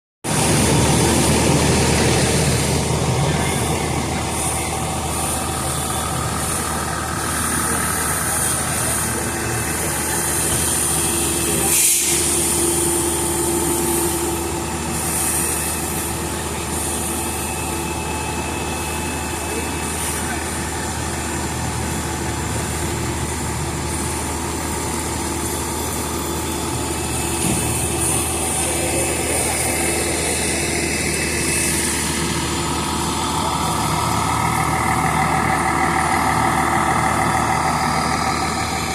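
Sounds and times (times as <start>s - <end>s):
fire truck engine running: 0.2s - 38.9s
brief rush: 0.3s - 16.1s
high steady tones: 0.3s - 38.9s.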